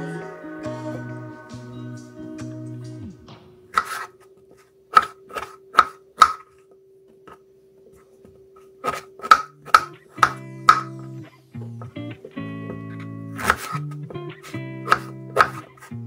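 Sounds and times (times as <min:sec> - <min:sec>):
background music: 0:00.0 - 0:03.8, 0:09.2 - 0:16.0
sharp knocks on hard surface: 0:09.3 - 0:10.9.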